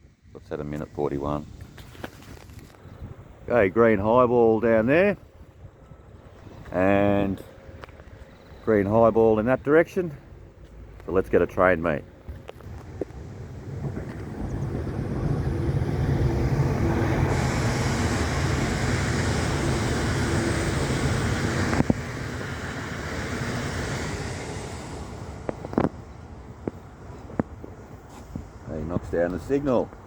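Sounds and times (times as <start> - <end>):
train passing rumble and rail hiss: 0.0 - 30.0.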